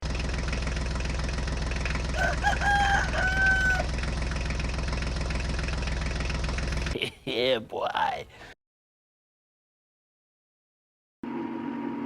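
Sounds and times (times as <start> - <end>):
small engine idling: 0.0 - 7.0
rooster crowing: 2.1 - 4.0.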